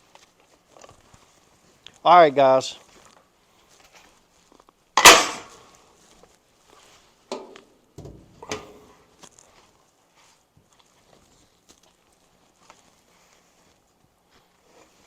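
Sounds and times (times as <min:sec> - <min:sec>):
loud metal clank with ringing: 0:05.0 - 0:05.5.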